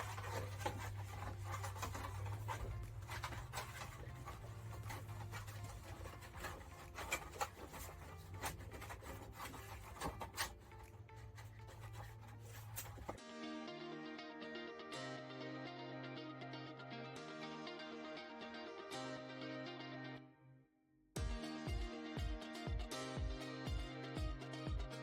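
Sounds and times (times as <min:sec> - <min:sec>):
plastic rubbing and scraping: 0:00.0 - 0:13.2.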